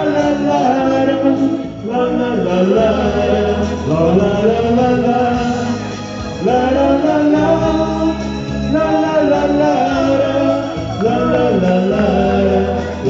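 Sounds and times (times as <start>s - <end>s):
instrumental backing music: 0.0s - 13.0s
man singing la la la: 0.0s - 13.0s.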